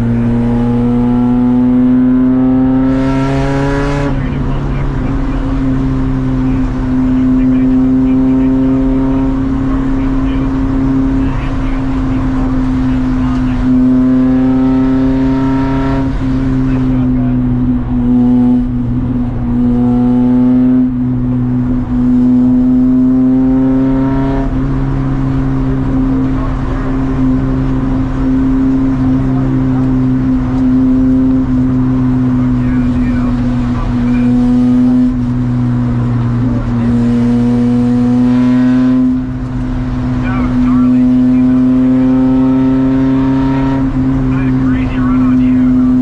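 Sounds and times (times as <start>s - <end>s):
race car engine revving: 0.0s - 46.0s.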